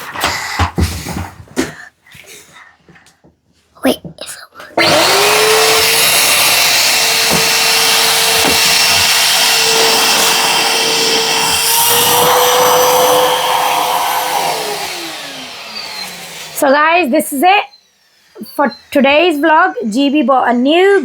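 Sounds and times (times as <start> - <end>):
vacuum cleaner running: 4.8 - 21.0
objects knocking through vacuum: 7.2 - 14.6.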